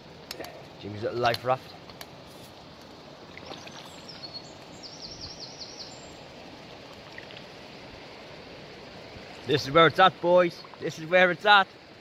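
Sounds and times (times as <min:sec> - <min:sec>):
river water rushing: 0:00.0 - 0:12.0
small bird calling: 0:03.3 - 0:06.2.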